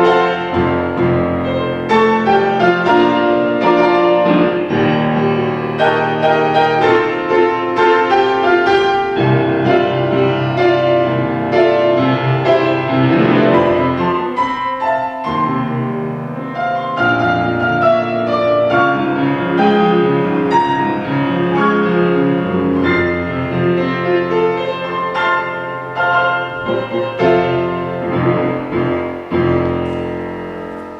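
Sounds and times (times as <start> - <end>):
classical piano piece: 0.0 - 30.9.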